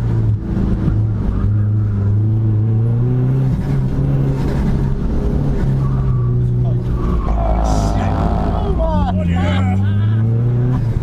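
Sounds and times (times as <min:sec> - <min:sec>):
car engine running hard: 0:00.0 - 0:11.0.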